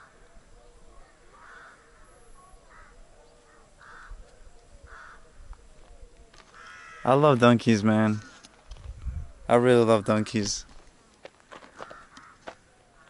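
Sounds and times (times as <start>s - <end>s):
faint bird calls: 0.0s - 7.2s, 11.6s - 13.0s.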